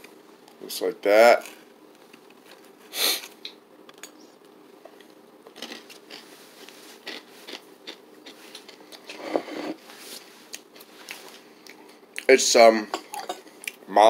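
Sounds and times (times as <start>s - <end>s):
person chewing crunchy cereal: 5.5s - 9.2s.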